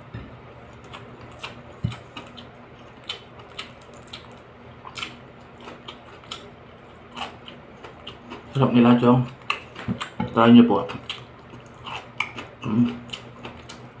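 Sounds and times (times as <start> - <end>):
faint low hum: 0.0 - 14.0
wet chewing and lip smacks: 0.8 - 6.5, 10.9 - 13.9.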